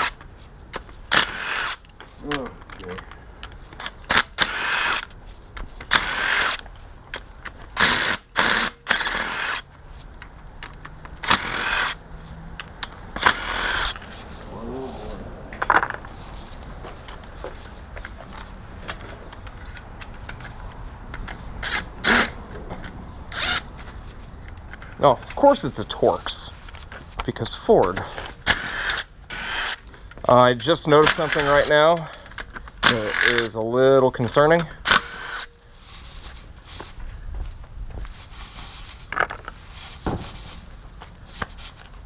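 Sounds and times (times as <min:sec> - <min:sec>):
power tool bursts: 0:01.1 - 0:01.8, 0:04.1 - 0:05.1, 0:05.9 - 0:06.6, 0:07.8 - 0:09.6, 0:11.2 - 0:12.0, 0:13.2 - 0:14.0, 0:21.6 - 0:22.4, 0:23.3 - 0:23.6, 0:28.4 - 0:29.8, 0:31.0 - 0:31.8, 0:32.8 - 0:33.5, 0:34.8 - 0:35.5.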